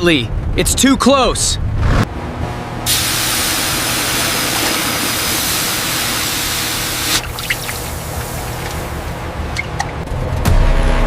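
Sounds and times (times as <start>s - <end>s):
loud rushing hiss: 2.9s - 8.0s.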